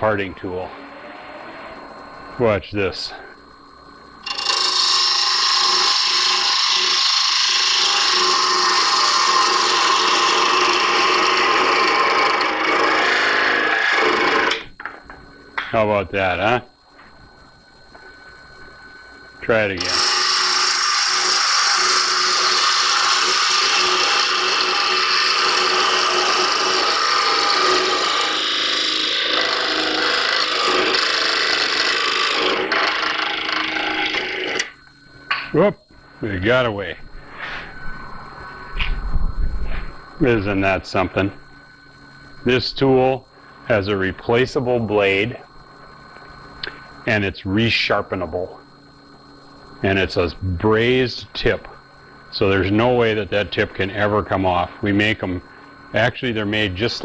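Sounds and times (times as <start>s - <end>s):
lathe tool shaving wood: 4.2s - 14.6s, 19.8s - 34.7s.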